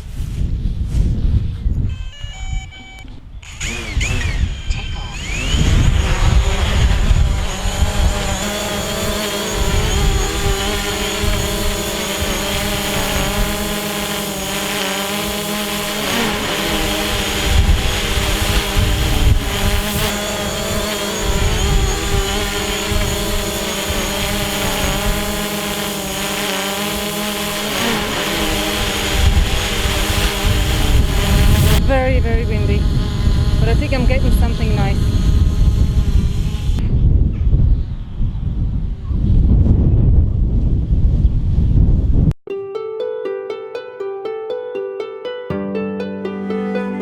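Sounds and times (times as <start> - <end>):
wind gusting on microphone: 0.0 - 42.3
drone propellers whining: 1.9 - 36.8.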